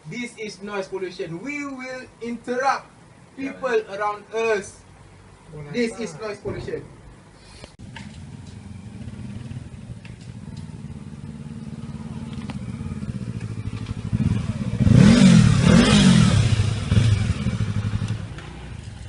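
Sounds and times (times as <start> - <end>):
motorcycle engine idling: 7.8 - 19.0
motorcycle engine revving: 7.8 - 19.0.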